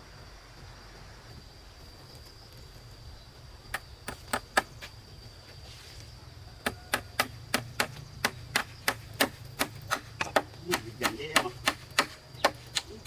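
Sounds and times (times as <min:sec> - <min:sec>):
tool striking sharp knocks: 0:06.6 - 0:12.9.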